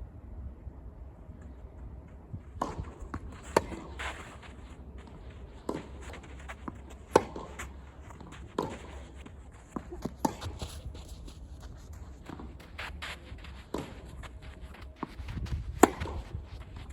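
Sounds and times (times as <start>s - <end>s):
footsteps on court: 1.3s - 16.9s
racket hitting tennis ball: 2.6s - 10.8s, 13.4s - 14.4s, 15.0s - 16.9s
tennis ball bouncing: 2.6s - 16.9s.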